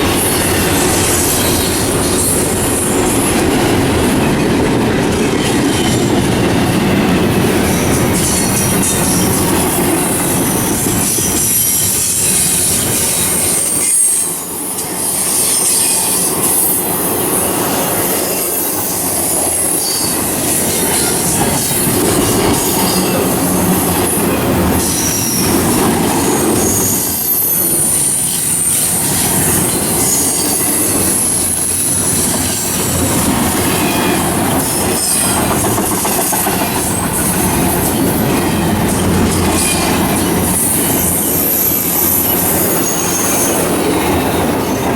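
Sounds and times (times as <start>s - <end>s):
train rumbling and clattering: 0.0s - 44.9s
wheels squealing: 15.0s - 44.9s.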